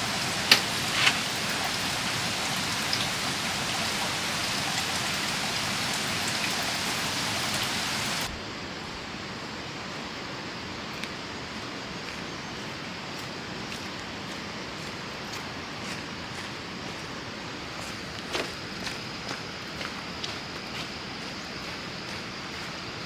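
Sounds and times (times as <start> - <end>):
sharp rain drop ticks: 0.0 - 8.3
heavy rain hissing: 0.0 - 23.0.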